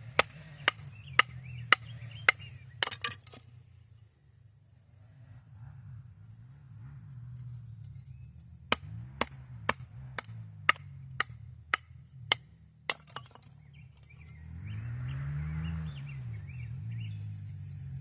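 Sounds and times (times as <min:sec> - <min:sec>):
hand tool striking wood: 0:00.1 - 0:03.4, 0:08.7 - 0:14.1.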